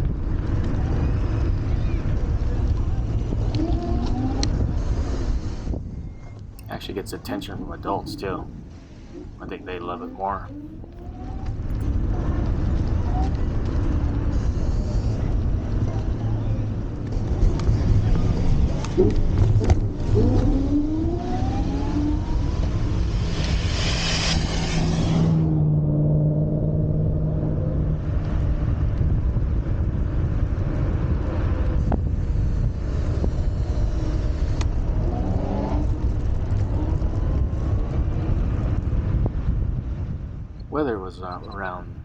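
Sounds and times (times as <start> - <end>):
electric scooter low rumble: 0.0 - 6.8, 10.4 - 40.8.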